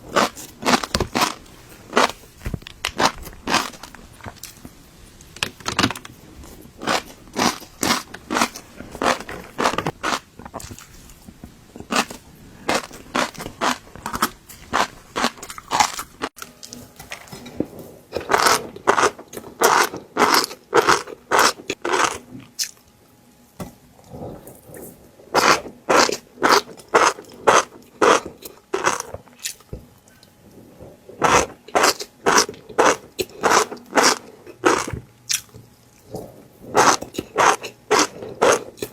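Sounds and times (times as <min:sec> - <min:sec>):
crunchy chewing: 0:00.0 - 0:16.8, 0:18.1 - 0:22.9, 0:24.3 - 0:38.9.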